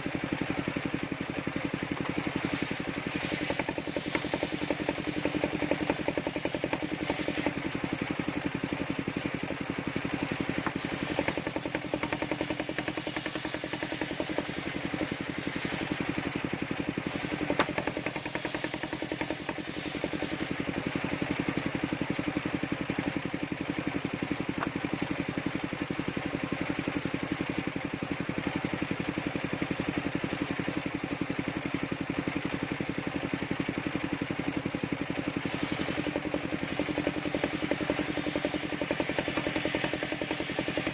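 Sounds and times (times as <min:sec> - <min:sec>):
circular sawmill engine running: 0:00.0 - 0:40.9.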